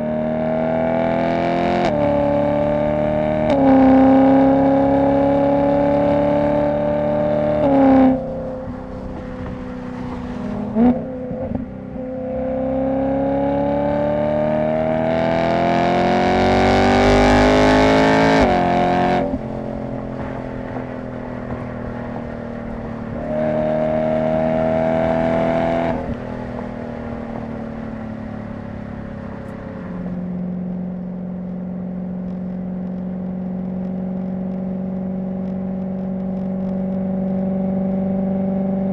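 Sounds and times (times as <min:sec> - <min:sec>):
engine revving blips: 0:00.0 - 0:20.1
car engine exhaust note: 0:00.0 - 0:38.9.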